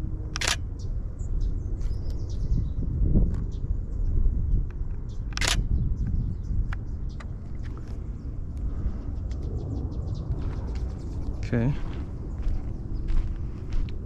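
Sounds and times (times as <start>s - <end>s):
steady low rumble: 0.0s - 14.0s
camera shutter clicking: 0.4s - 0.6s, 5.3s - 5.7s.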